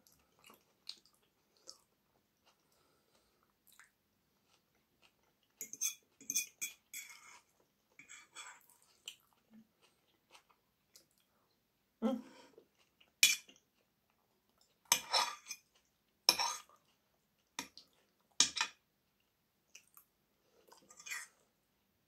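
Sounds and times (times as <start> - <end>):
person chewing crunchy food: 0.0 - 6.2, 8.5 - 11.3.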